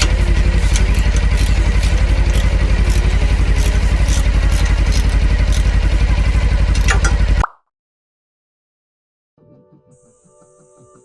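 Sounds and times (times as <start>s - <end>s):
motorcycle engine idling: 0.0s - 7.4s.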